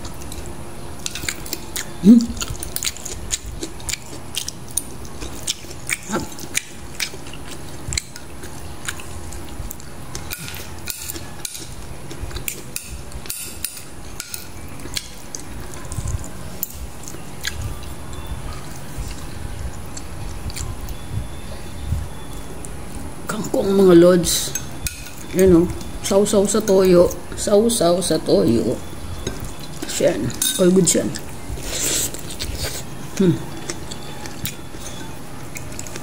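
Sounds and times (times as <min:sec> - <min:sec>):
wet chewing and lip smacks: 0:01.1 - 0:10.4.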